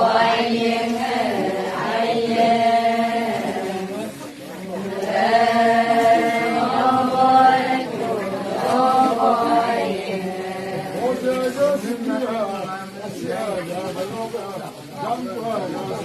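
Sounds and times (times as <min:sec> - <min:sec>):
voices chanting long notes: 0:00.0 - 0:12.2.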